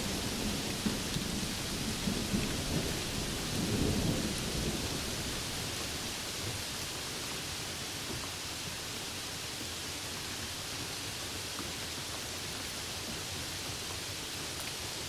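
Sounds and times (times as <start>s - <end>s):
thunder rumbling: 0.0s - 6.1s
steady rain hiss: 0.0s - 15.0s.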